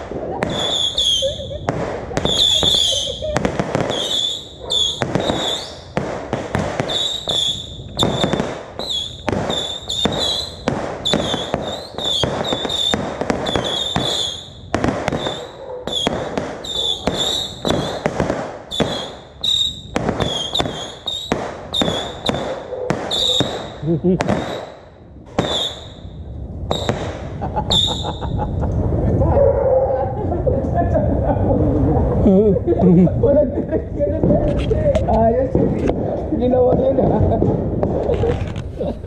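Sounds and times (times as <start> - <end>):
fireworks bangs: 0.0 - 29.4, 33.7 - 39.0
high wavering firework whistle: 0.4 - 1.6, 2.2 - 6.0, 6.8 - 18.1, 18.7 - 24.8, 25.4 - 28.4.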